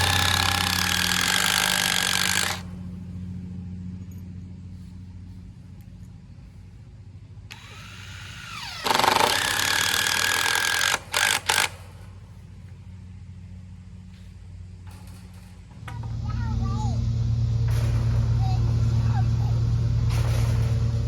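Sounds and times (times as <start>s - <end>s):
power drill driving screw: 0.0s - 2.7s, 7.5s - 12.0s.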